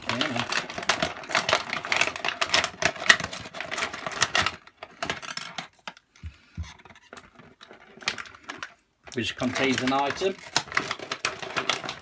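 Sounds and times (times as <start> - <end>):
toy packaging crackling: 0.0 - 12.0.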